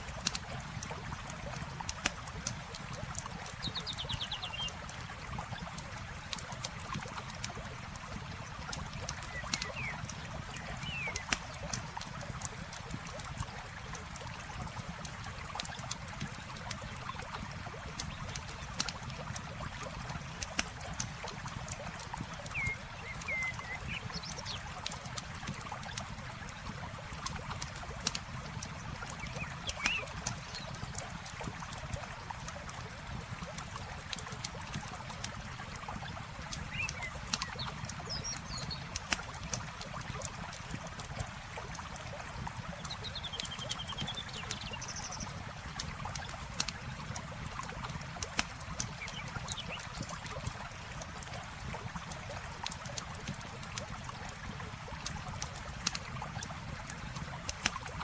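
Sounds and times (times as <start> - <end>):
campfire crackling and popping: 0.0 - 58.0
river water flowing: 0.0 - 58.0
bird chirps: 10.7 - 11.3, 22.5 - 24.0.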